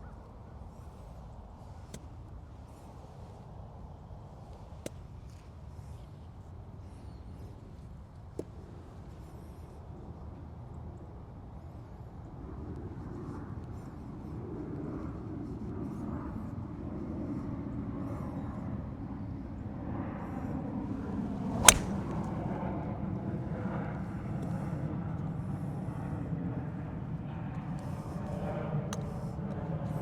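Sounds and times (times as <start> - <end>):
golf club hitting ball: 21.5 - 22.3.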